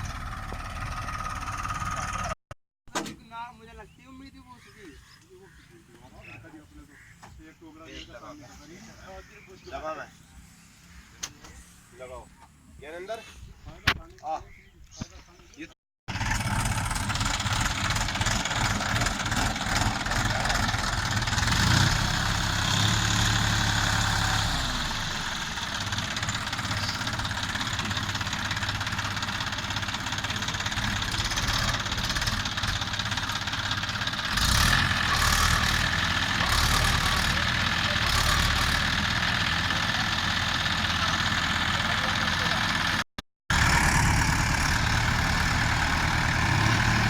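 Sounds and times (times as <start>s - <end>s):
tractor diesel engine idling: 0.0s - 2.4s, 16.1s - 47.0s.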